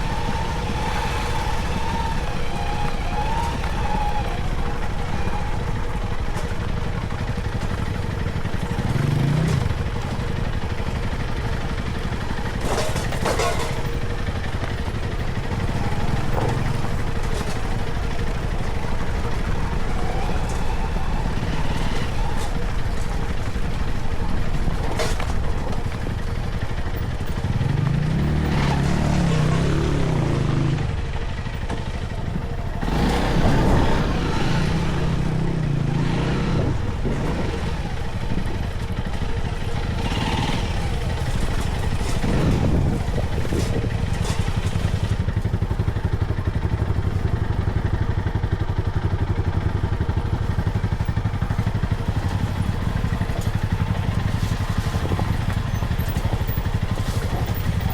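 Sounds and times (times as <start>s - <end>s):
knocks and rattles: 0.0s - 30.7s
vehicle engine revving: 0.0s - 47.4s, 49.8s - 57.9s.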